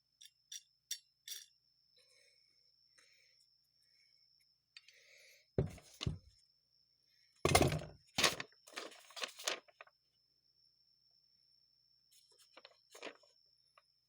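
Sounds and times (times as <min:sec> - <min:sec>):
tools clattering on workbench: 0:05.6 - 0:06.2, 0:07.5 - 0:08.4.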